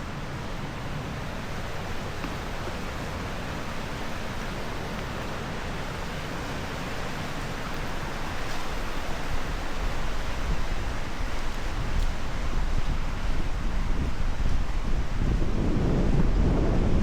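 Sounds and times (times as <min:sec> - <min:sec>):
river water rushing: 0:00.0 - 0:17.0
wind buffeting microphone: 0:08.0 - 0:17.0.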